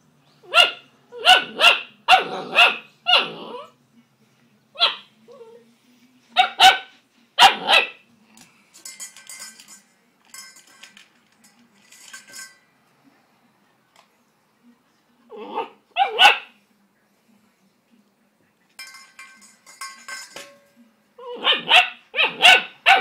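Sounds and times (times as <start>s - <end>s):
puppy barking high-pitched: 0.4s - 3.7s, 4.8s - 5.1s, 6.4s - 8.0s, 15.5s - 16.6s, 21.3s - 23.0s.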